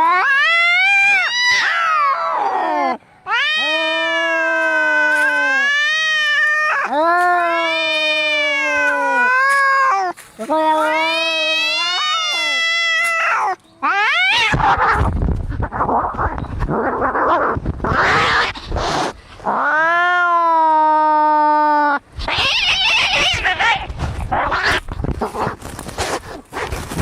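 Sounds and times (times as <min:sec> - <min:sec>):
cat long yowl: 0:00.0 - 0:15.0
cats snarling and spitting: 0:12.3 - 0:19.8, 0:21.8 - 0:27.0.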